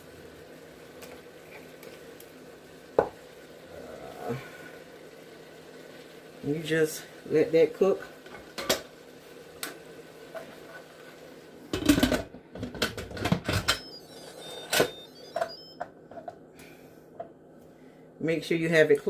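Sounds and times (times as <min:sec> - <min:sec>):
knocks and clatter of pressure cooker: 0:11.7 - 0:13.8
clicks: 0:13.5 - 0:15.9
faint short beeps: 0:13.7 - 0:15.8.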